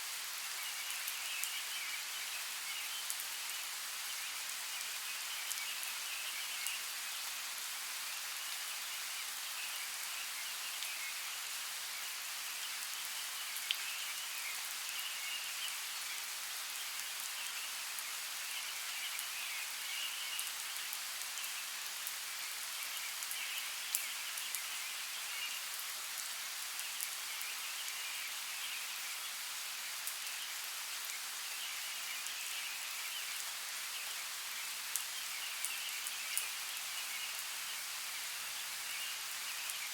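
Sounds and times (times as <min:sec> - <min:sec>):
rain falling: 0:00.0 - 0:39.9
rain drops ticking: 0:02.8 - 0:07.4, 0:12.5 - 0:15.1, 0:15.7 - 0:28.5, 0:29.9 - 0:37.9.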